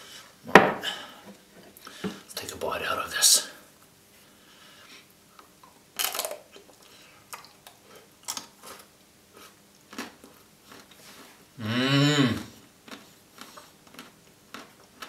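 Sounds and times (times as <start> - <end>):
crisp crunches: 6.0 - 6.4
crunchy bite of ice cream: 6.0 - 6.6.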